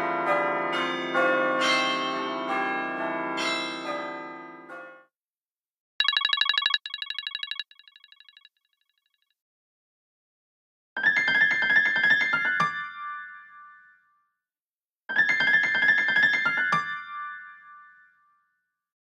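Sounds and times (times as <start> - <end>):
ringtone melody: 6.0 - 8.5.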